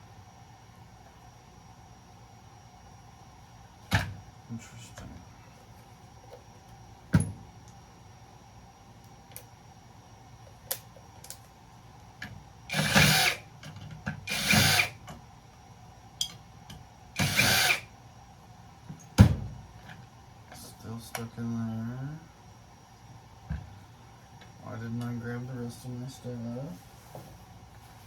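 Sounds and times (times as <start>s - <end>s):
power drill bursts: 12.7s - 13.4s, 14.3s - 15.0s, 17.2s - 17.9s.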